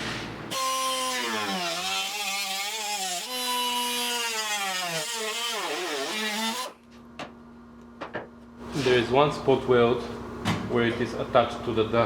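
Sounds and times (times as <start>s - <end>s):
angle grinder cutting sheet steel: 0.5s - 6.8s.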